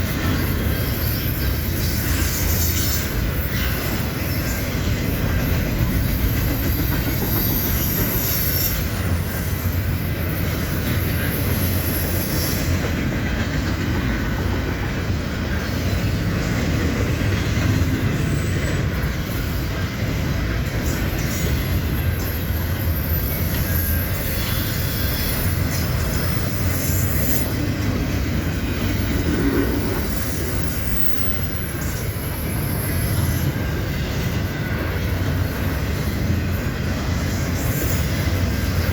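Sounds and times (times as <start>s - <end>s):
train wheels rumbling on rail: 0.0s - 38.9s
wheel squeal: 5.4s - 12.8s.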